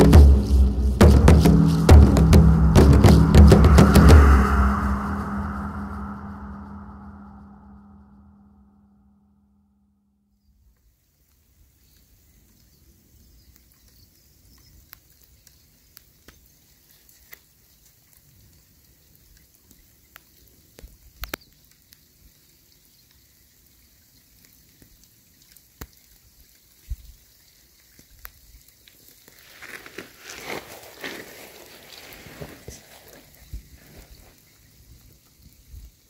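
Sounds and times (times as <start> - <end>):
rain hiss: 0.0 - 7.5, 10.8 - 36.0
low wind rumble: 0.0 - 8.4
raindrops ticking: 13.5 - 36.0.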